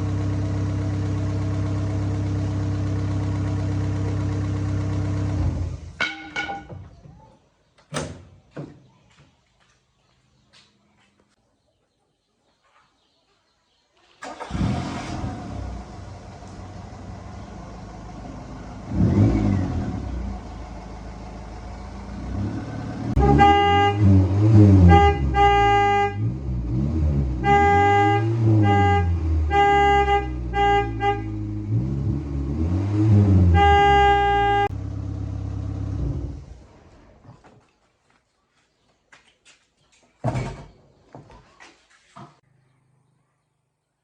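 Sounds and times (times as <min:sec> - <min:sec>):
car engine revving: 0:14.2 - 0:37.0
car horn honking: 0:22.3 - 0:34.8.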